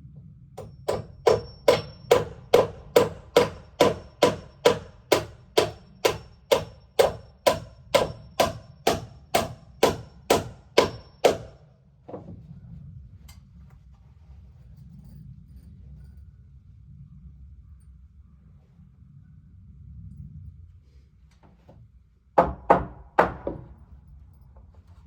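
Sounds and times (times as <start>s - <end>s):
hammering on wood: 0.6s - 12.2s, 22.4s - 23.8s.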